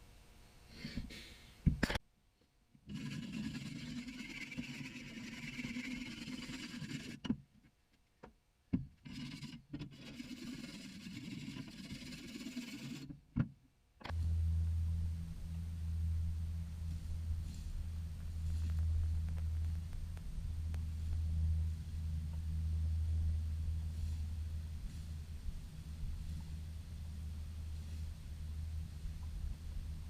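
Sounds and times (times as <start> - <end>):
steady low hum: 14.0 - 30.0
tractor engine running: 14.0 - 30.0.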